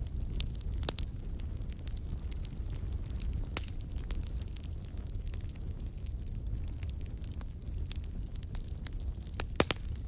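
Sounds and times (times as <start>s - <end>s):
fire popping and snapping: 0.0s - 10.0s
flames rumbling: 0.0s - 10.0s
wood fire crackling: 0.0s - 10.0s.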